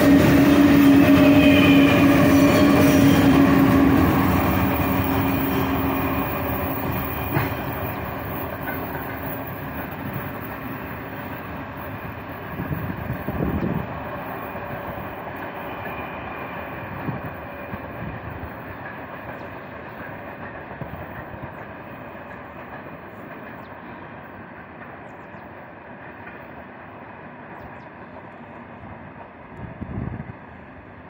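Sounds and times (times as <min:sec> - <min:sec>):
freight train wheels rumbling: 0:00.0 - 0:31.0
wind gust on microphone: 0:12.4 - 0:14.0, 0:29.6 - 0:30.5.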